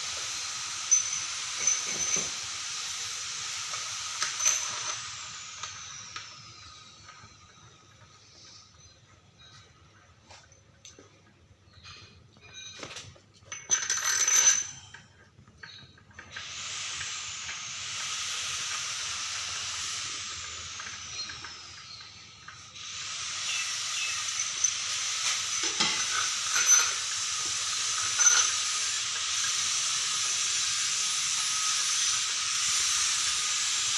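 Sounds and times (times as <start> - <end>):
air jet hissing: 16.4 - 22.0, 22.6 - 33.9.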